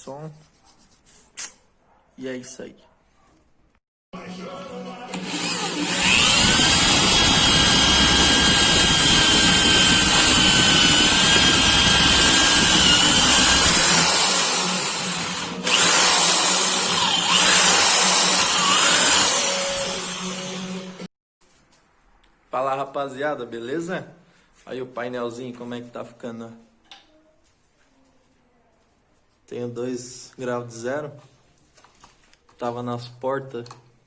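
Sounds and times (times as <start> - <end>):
power drill motor whining: 5.1 - 21.1.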